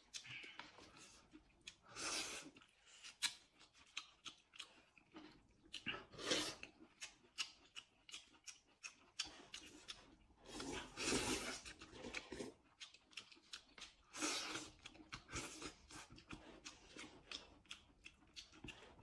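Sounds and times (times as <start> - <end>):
chewing and mouth clicks: 0.0 - 19.0
slurping noodles: 5.9 - 6.8, 10.4 - 12.6.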